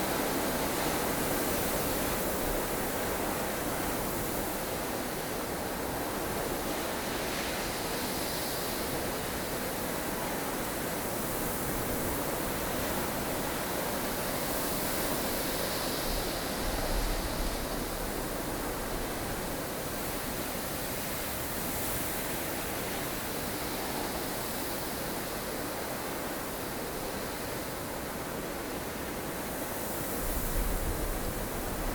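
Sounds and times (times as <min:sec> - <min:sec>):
strong wind of snowstorm: 0:29.4 - 0:31.9.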